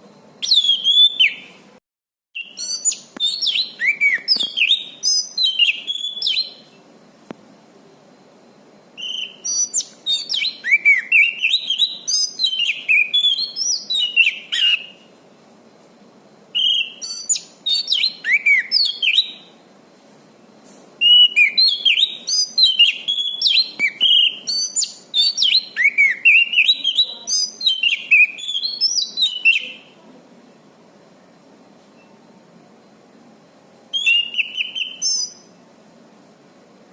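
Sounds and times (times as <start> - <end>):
thrush singing whistles and chirps: 0.4 - 1.6, 2.4 - 6.8, 9.0 - 15.1, 16.6 - 19.5, 21.0 - 30.0, 33.9 - 35.6.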